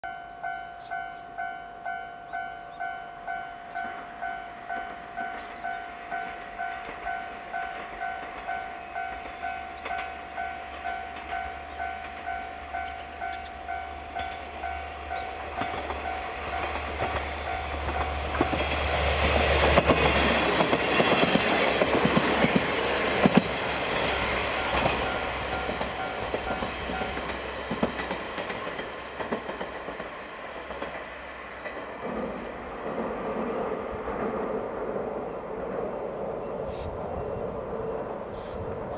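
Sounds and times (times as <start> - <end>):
level-crossing warning bell: 0.0 - 21.9, 23.2 - 29.0
diesel train rumbling: 0.1 - 38.9
wheels clicking over rail joints: 3.8 - 33.2.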